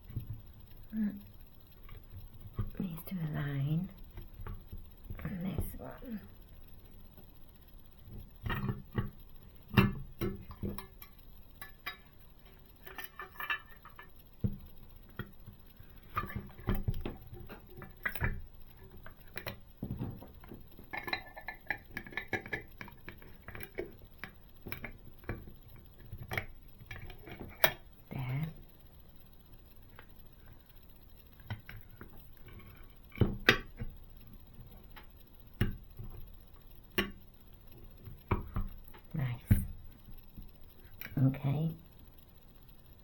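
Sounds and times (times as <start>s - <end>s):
small plastic parts clicking: 3.8s - 43.0s.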